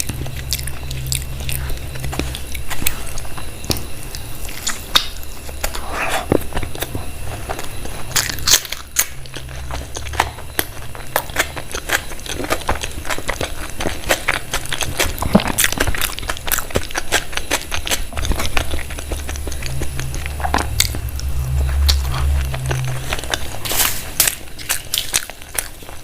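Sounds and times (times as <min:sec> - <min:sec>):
chewing and biting food: 0:00.0 - 0:26.0
low rumble: 0:18.2 - 0:24.4.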